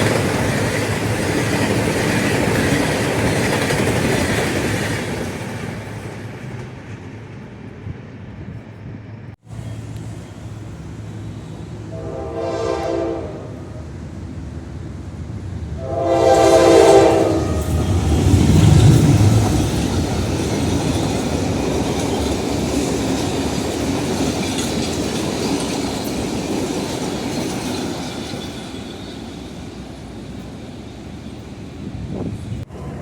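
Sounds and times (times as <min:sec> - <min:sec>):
locomotive engine rumble: 0:06.4 - 0:33.0
locomotive horn blast: 0:11.7 - 0:13.9, 0:15.8 - 0:18.2.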